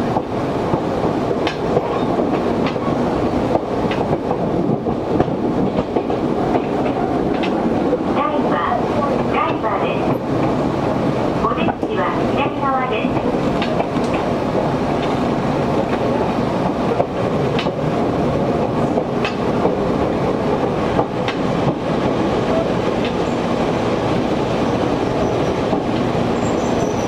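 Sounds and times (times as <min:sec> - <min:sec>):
train wheels rumbling on rails: 0:00.0 - 0:27.0
high wheel squeal: 0:26.4 - 0:27.0.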